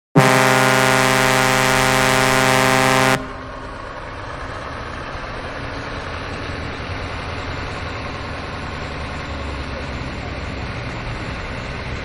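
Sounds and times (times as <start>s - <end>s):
loud horn blast: 0.2s - 4.0s
steady rumbling noise: 0.2s - 9.2s.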